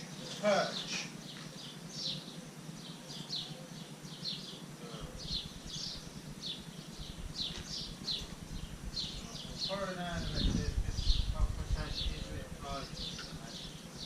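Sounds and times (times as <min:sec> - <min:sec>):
bird chirping: 0:00.0 - 0:14.0
low rumble: 0:07.0 - 0:13.1.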